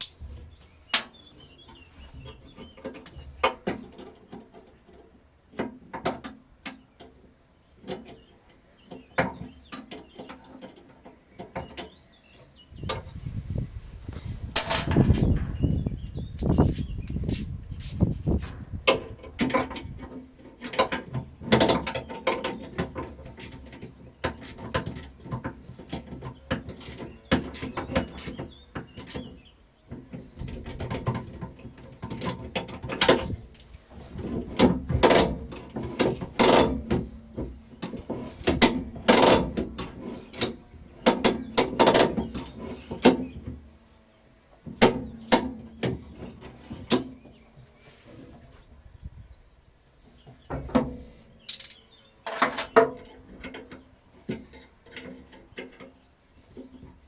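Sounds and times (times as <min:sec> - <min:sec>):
hand tools clanking on metal: 0:00.0 - 0:00.2, 0:14.5 - 0:15.3, 0:50.6 - 0:56.0.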